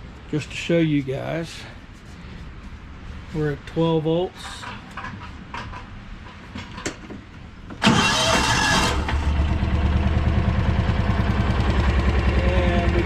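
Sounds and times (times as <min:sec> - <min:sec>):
engine cranking and idling: 0:07.7 - 0:13.0.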